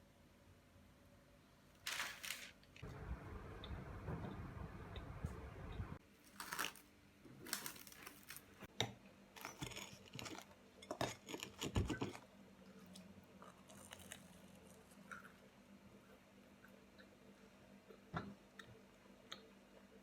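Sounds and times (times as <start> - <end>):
low handling rumble: 2.8 - 6.0
sharp clicks and crinkles: 7.4 - 8.6.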